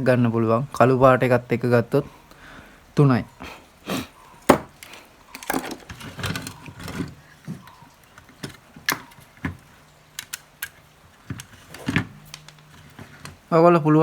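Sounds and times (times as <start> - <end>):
rustling: 3.4 - 13.7.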